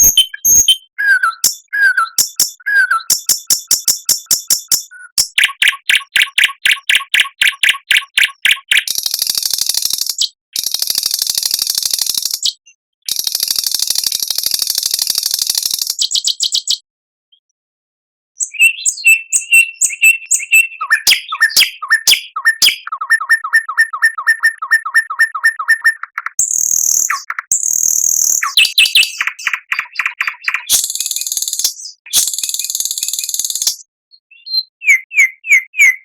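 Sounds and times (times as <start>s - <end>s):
high buzzy bird trills: 0.0s - 4.8s
high bird trill: 0.0s - 9.1s, 18.4s - 36.0s
songbirds singing: 0.0s - 10.8s, 18.4s - 36.0s.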